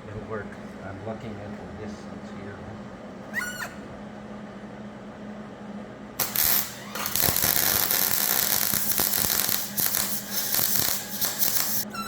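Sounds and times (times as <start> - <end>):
welding arc crackling: 6.2 - 11.9.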